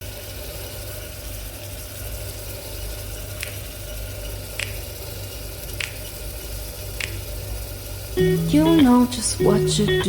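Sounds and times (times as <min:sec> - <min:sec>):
steady low hum: 0:08.2 - 0:10.0.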